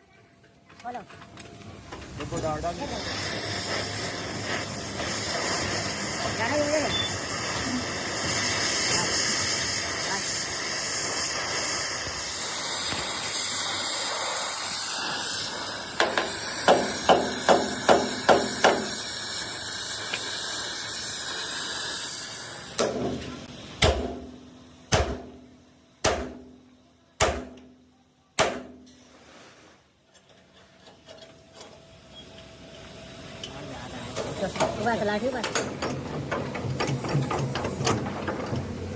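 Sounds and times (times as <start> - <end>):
steady hiss: 1.6 - 27.0, 28.9 - 38.9
hammer striking steel: 16.0 - 19.0, 22.8 - 26.6, 27.2 - 27.7, 28.4 - 28.9.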